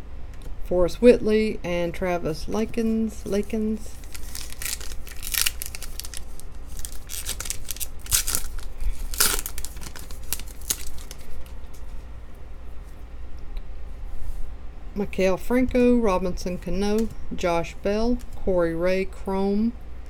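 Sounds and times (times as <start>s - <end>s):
foil wrapper tearing and crinkling: 3.9s - 11.6s.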